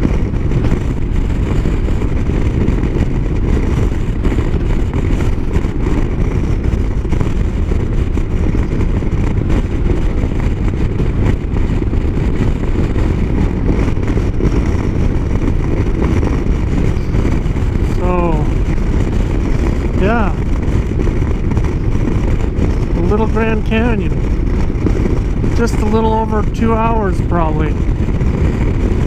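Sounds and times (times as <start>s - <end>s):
motorcycle engine: 0.0s - 29.0s
road noise: 0.0s - 29.0s
wind rushing on microphone: 0.0s - 29.0s.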